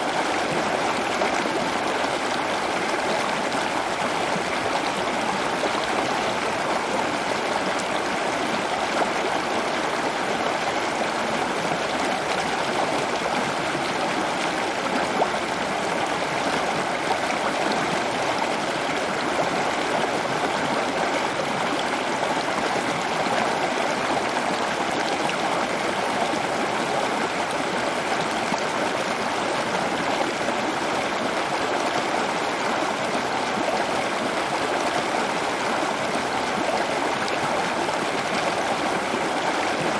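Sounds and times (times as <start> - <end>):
running water trickling: 2.1 - 5.5, 33.8 - 39.9.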